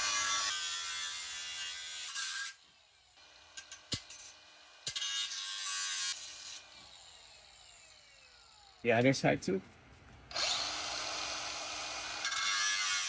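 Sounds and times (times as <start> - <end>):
power cutting tool running: 10.3 - 13.0.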